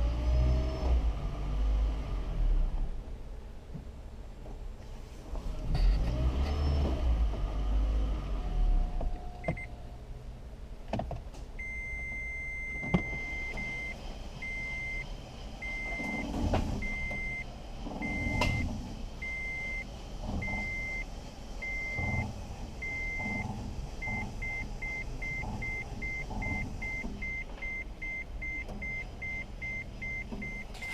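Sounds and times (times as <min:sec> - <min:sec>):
car warning beeps: 0:09.4 - 0:09.8, 0:11.6 - 0:30.9
low rumbling: 0:11.5 - 0:30.9.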